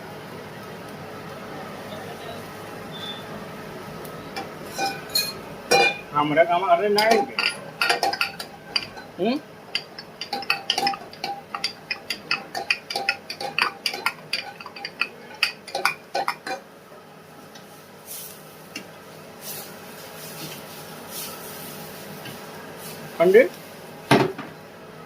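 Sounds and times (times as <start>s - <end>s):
metal utensils clattering on cookware: 4.6s - 6.1s, 6.9s - 16.6s.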